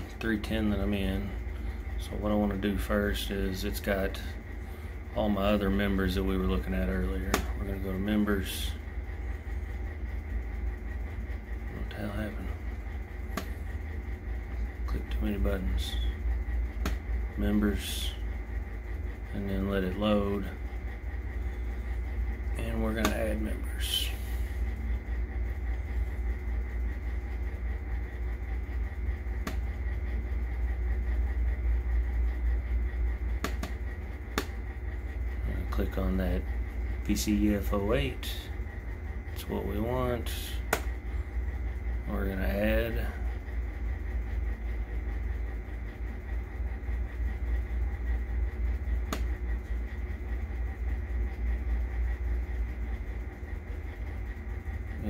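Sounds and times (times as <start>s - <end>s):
low machinery hum: 0.0s - 55.0s
sharp click: 33.4s - 33.8s.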